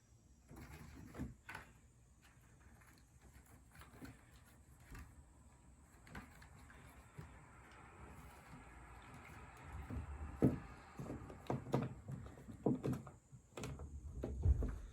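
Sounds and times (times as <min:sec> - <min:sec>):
kitten knocking and scuffing: 0:08.2 - 0:14.9.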